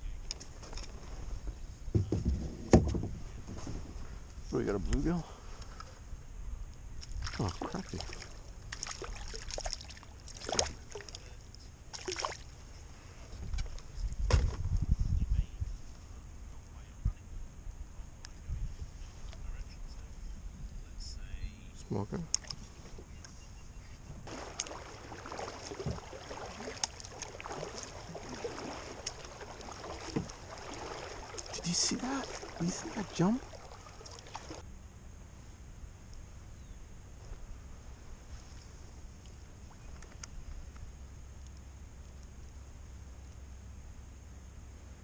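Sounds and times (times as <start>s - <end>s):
knocks and rustles in kayak: 0.3s - 5.0s, 13.2s - 15.1s, 24.0s - 34.6s
water sloshing: 7.0s - 12.6s, 24.3s - 34.6s.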